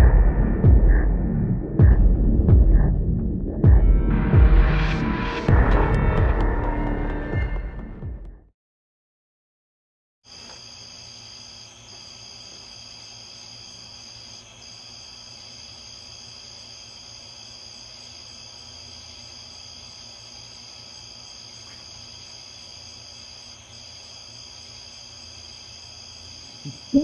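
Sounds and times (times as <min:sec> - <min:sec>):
crickets trilling: 0:10.3 - 0:27.0.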